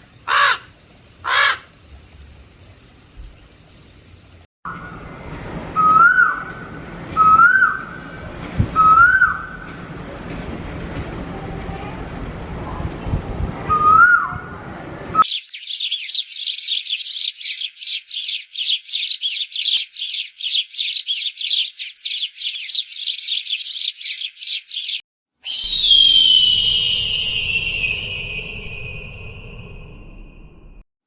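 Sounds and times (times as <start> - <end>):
bird whistle sliding down: 0.0 - 1.7, 25.4 - 30.4
bird chirps: 0.3 - 1.7, 15.2 - 29.2.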